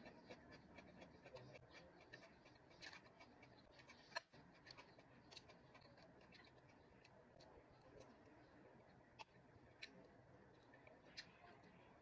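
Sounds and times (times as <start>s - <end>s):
person chewing food: 0.0s - 7.2s.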